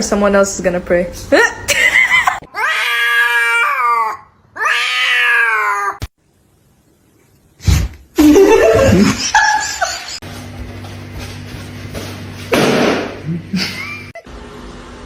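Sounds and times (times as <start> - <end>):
cat meowing: 2.5 - 6.0.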